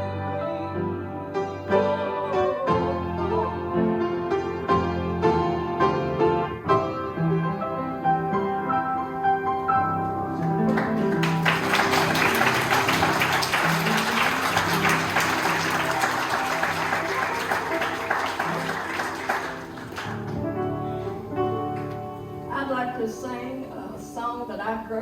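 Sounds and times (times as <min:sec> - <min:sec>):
piano music: 0:00.0 - 0:25.0
audience applause: 0:10.4 - 0:20.5.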